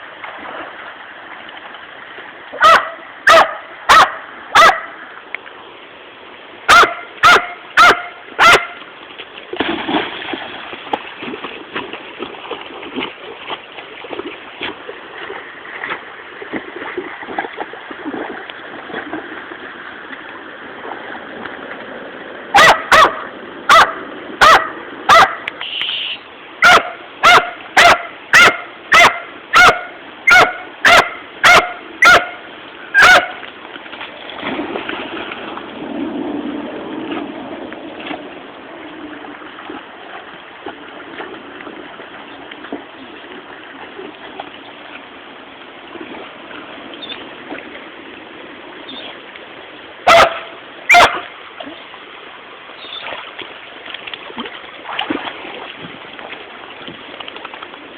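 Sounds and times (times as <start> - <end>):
river water rushing: 0.0 - 57.9
dog barking: 2.6 - 4.9, 6.7 - 8.8, 22.5 - 25.4, 26.6 - 32.4, 33.0 - 33.4, 50.1 - 51.2.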